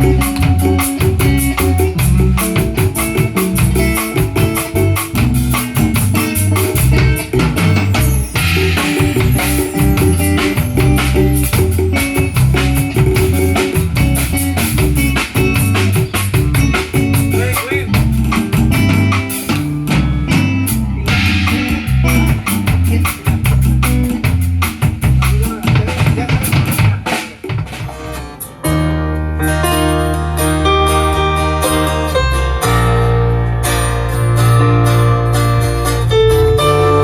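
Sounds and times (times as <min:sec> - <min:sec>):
drum rimshots and kick drum: 0:00.0 - 0:28.1
live band playing: 0:00.0 - 0:37.0.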